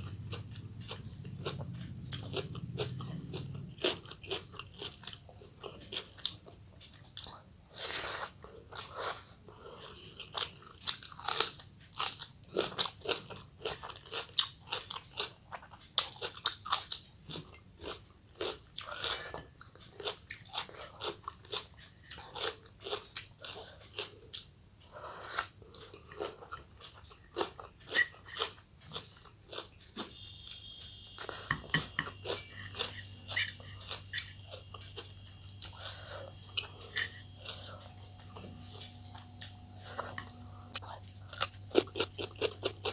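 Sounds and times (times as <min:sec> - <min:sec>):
person chewing and crunching food: 0:00.0 - 0:42.9
faint high-pitched tone: 0:30.0 - 0:41.6.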